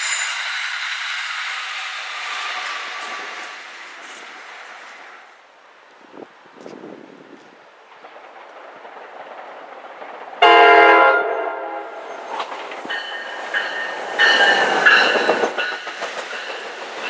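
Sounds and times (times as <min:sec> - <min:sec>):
high-pitched squeals: 0:00.0 - 0:05.3
train rumbling past: 0:00.0 - 0:17.0
train horn blast: 0:10.4 - 0:12.1.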